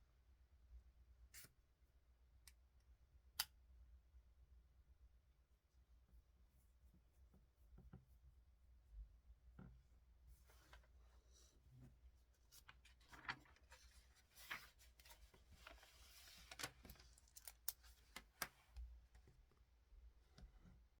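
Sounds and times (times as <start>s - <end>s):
paper rustling: 12.4s - 18.6s.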